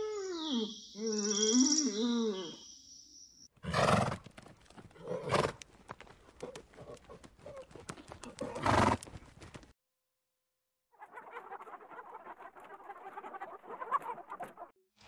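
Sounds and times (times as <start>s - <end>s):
hoof clicks: 4.0s - 9.7s.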